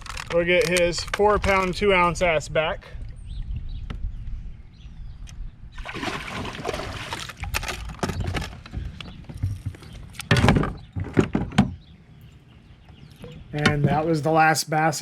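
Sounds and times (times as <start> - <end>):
water splashing: 5.8 - 7.9.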